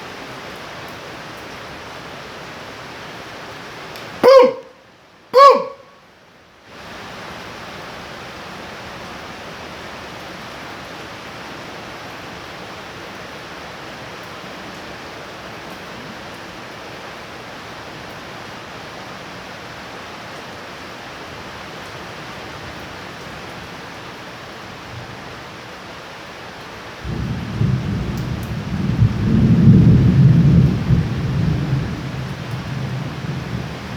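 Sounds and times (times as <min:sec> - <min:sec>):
heavy rain falling: 0:00.0 - 0:05.2, 0:06.7 - 0:33.9
low thunder rumble: 0:27.0 - 0:33.9.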